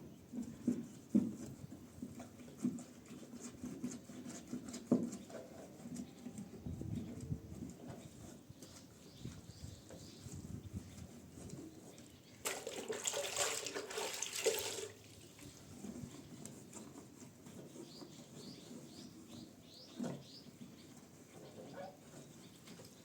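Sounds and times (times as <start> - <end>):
water running or splashing: 12.4 - 15.5.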